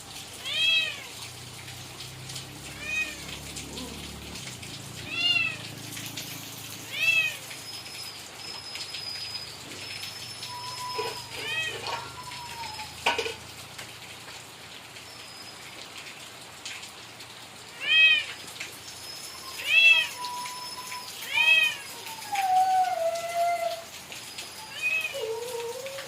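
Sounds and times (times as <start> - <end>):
cat meowing: 0.4 - 1.2, 2.7 - 4.0, 5.0 - 5.7, 6.9 - 7.5, 10.5 - 13.0, 17.8 - 18.4, 19.5 - 23.9, 24.6 - 26.0.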